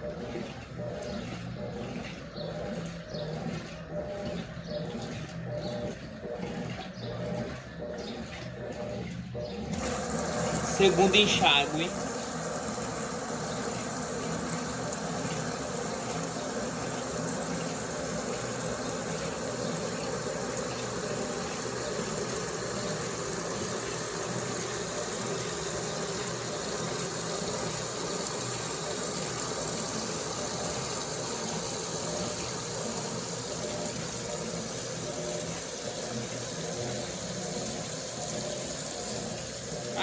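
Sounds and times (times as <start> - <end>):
water pouring into tub: 9.7 - 40.0.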